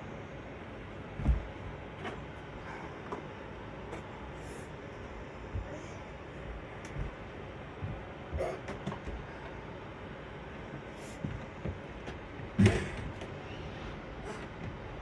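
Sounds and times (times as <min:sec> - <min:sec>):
steady background hum: 0:00.0 - 0:15.0
knocks and thumps: 0:01.1 - 0:02.3, 0:06.8 - 0:09.3, 0:11.2 - 0:13.4.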